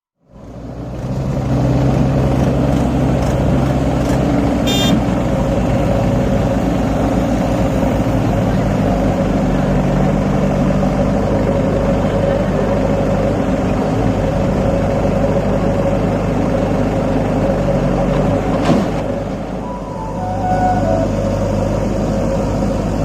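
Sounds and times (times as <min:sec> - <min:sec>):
tractor diesel engine under load: 0:00.2 - 0:23.0.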